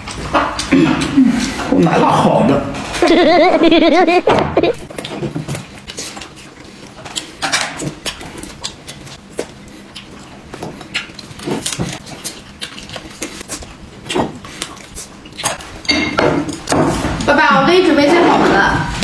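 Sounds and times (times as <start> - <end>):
chewing: 0.0 - 1.7, 4.9 - 16.7.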